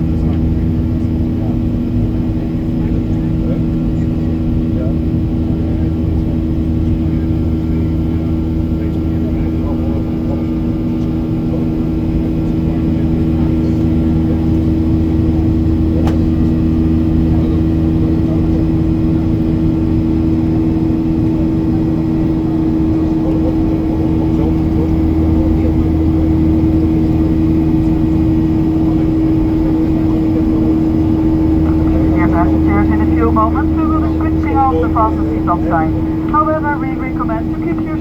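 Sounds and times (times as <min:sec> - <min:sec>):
jet engines droning in cabin: 0:00.0 - 0:38.0
airflow noise: 0:30.8 - 0:38.0.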